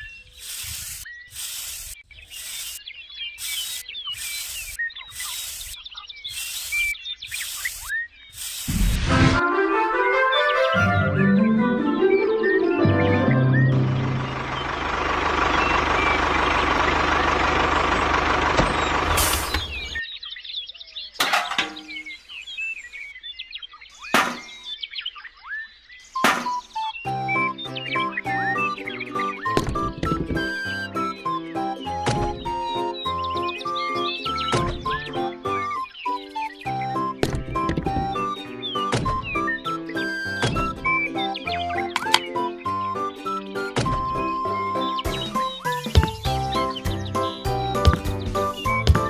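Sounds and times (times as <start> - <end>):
birds chirping: 0.0 - 9.0, 10.2 - 49.0
sharp knocks: 24.1 - 24.6, 26.2 - 26.6, 47.5 - 49.0.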